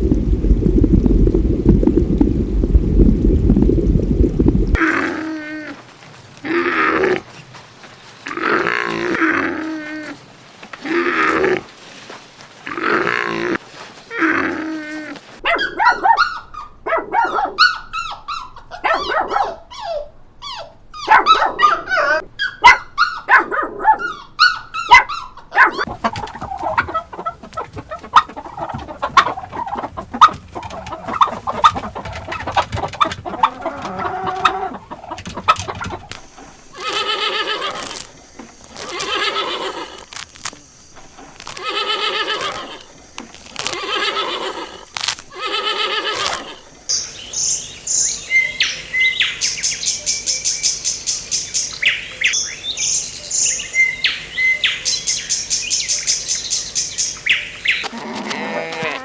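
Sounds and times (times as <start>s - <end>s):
animal calls: 12.7s - 50.5s.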